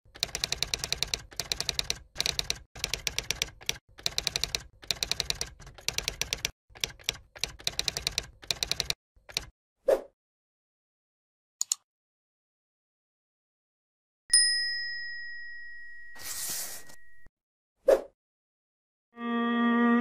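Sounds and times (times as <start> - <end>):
rapid typing clicks: 0.1 - 9.5.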